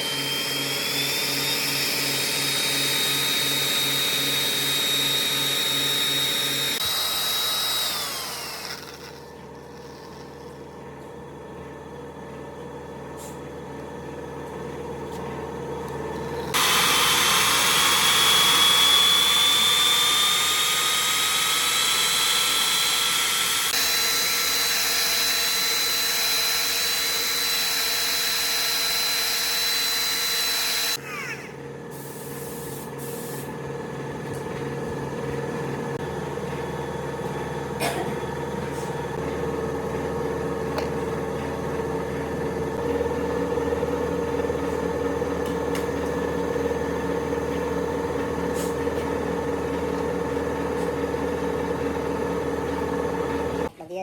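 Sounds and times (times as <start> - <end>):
power tool whine: 0.0 - 10.6, 16.1 - 31.6.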